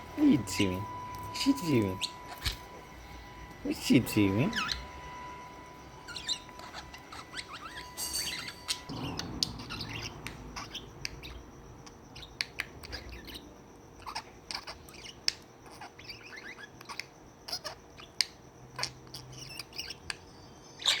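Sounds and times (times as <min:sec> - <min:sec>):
budgerigar chirping: 0:04.5 - 0:04.9, 0:06.0 - 0:13.4, 0:14.0 - 0:20.2, 0:20.8 - 0:21.0.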